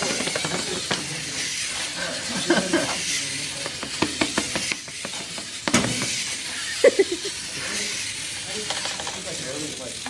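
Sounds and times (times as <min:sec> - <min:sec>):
toy robot mechanism clicking: 0:03.0 - 0:10.0.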